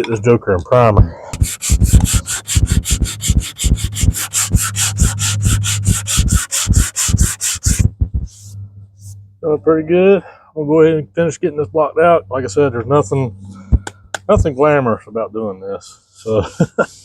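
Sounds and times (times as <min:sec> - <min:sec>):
sanding block scraping: 0:01.4 - 0:08.5.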